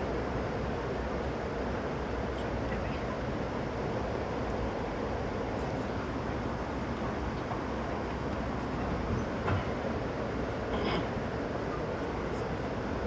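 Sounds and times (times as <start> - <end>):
train wheels on rails: 6.7 - 13.0.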